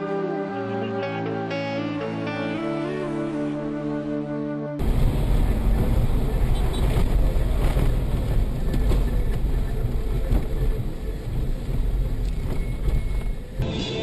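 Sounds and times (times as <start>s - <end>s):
moving vehicle rumble: 4.8s - 13.8s.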